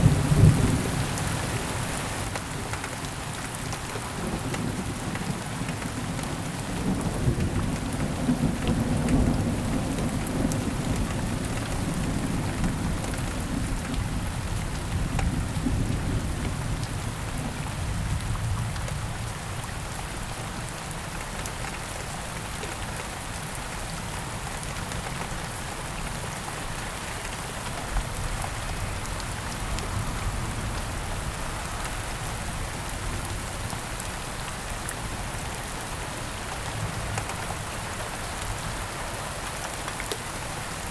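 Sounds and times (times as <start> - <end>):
low rumble of thunder: 0.0 - 1.3, 4.2 - 19.7
steady rain: 0.0 - 40.9.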